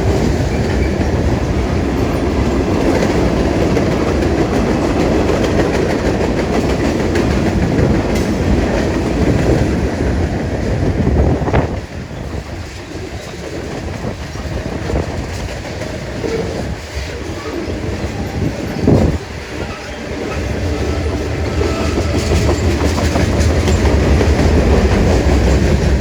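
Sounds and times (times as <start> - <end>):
wheels clattering over rail joints: 12.2 - 26.0.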